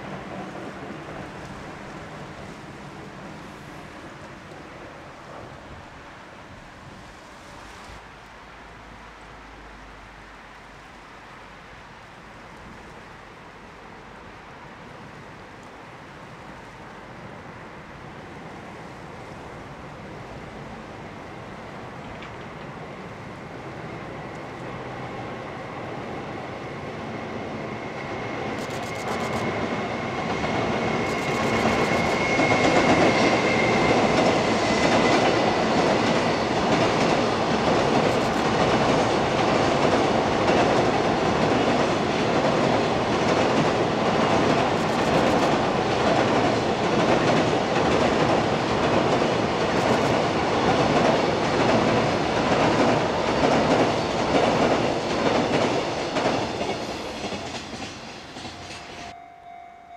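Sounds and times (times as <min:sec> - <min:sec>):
freight train passing over bridge: 0:00.0 - 0:59.9
thin high steady tone: 0:58.6 - 0:59.9.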